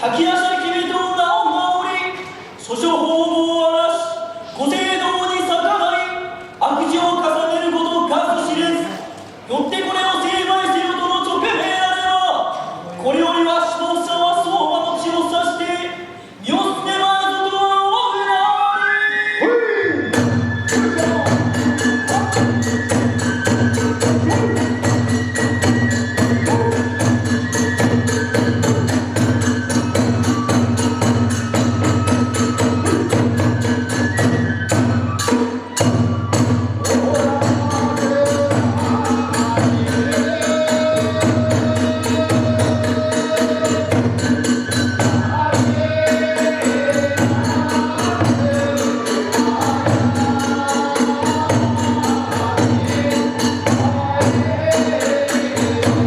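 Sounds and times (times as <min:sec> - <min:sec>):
drum beat: 0:20.2 - 0:56.0.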